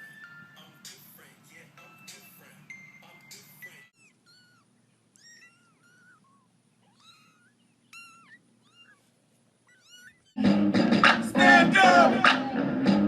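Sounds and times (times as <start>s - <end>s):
cat meowing faintly: 3.7s - 10.4s.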